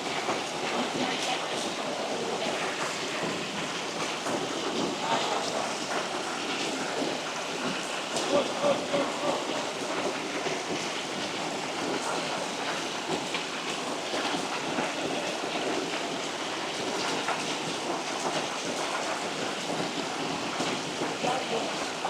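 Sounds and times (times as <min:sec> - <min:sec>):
water splashing over waterfall: 0:00.0 - 0:22.0.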